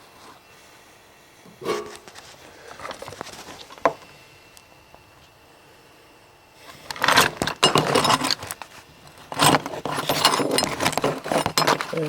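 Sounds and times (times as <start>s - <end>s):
hard objects rattling and clattering: 6.9s - 12.0s.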